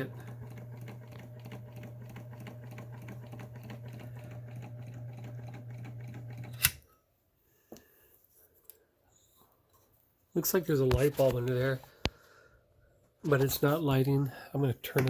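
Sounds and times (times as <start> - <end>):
sewing machine running: 0.0 - 6.7.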